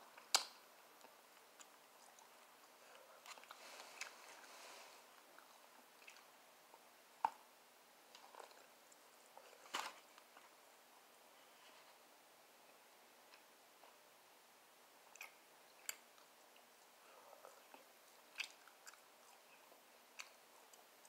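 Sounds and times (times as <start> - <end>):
person chewing ribs: 5.2 - 6.4, 15.1 - 21.0
sharp crunches and mouth clicks: 15.1 - 16.7, 17.6 - 21.0.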